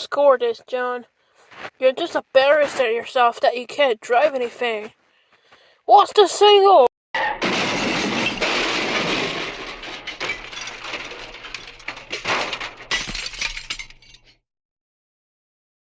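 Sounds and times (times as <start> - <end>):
debris crunching: 7.2 - 14.4
glass breaking: 7.2 - 14.4.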